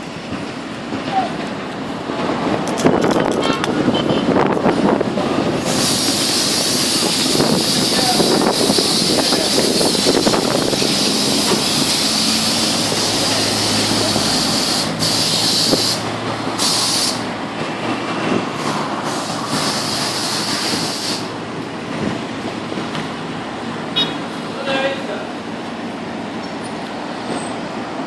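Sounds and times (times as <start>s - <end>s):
loud machinery hissing: 5.6s - 17.4s, 18.5s - 21.6s.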